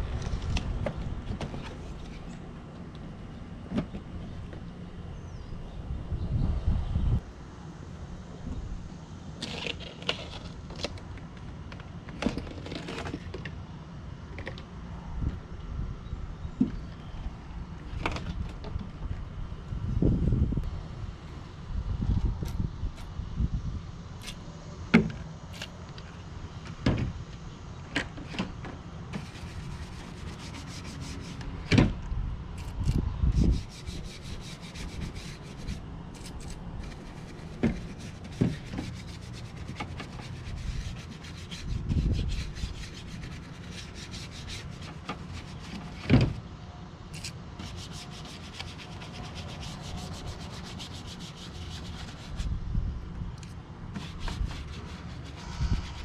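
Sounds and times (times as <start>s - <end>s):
brush scrubbing: 29.2s - 31.5s, 33.4s - 46.0s, 47.2s - 52.5s, 54.0s - 56.0s.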